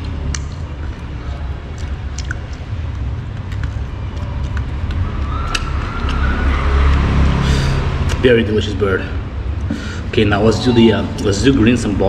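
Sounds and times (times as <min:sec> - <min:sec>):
road traffic rumble: 0:00.0 - 0:12.0
passing vehicle engine: 0:03.6 - 0:12.0.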